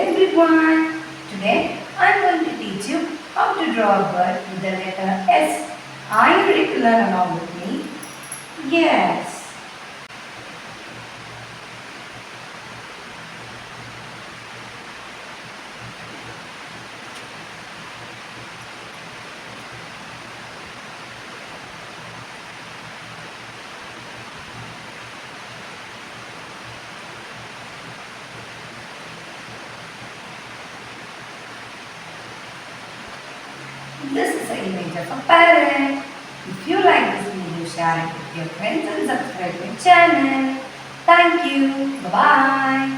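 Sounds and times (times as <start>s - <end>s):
faint low hum: 0.0s - 10.0s, 30.9s - 42.9s
background hiss: 0.0s - 42.9s.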